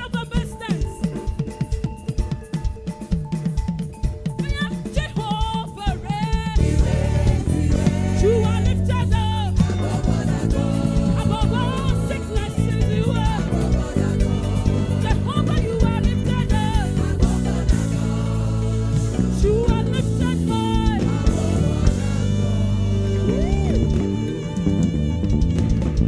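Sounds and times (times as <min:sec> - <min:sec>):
band accompaniment: 0:00.0 - 0:26.0
choir singing gospel song: 0:05.9 - 0:26.0.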